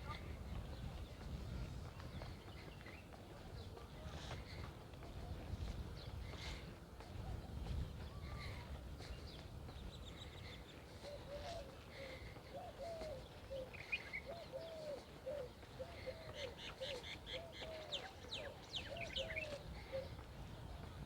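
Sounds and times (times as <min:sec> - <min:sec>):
small birds chirping: 0:07.7 - 0:20.2.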